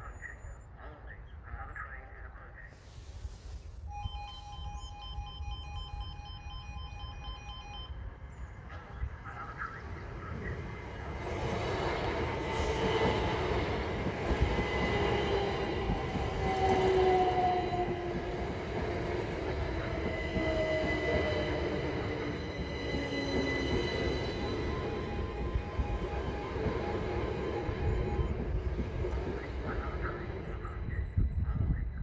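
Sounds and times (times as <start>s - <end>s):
train wheels running on rails: 8.7s - 31.2s.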